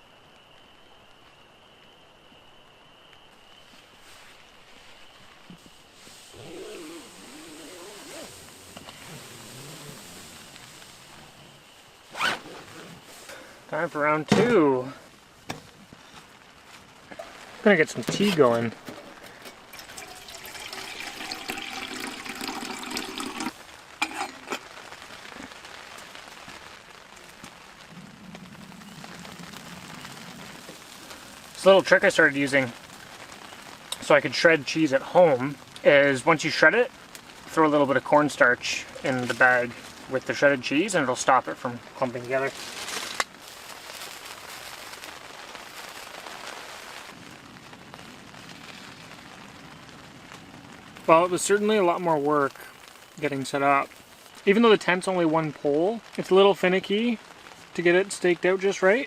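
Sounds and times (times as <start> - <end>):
rain pattering on a tent: 0.0 - 59.0
water pouring into a pot: 19.3 - 24.7.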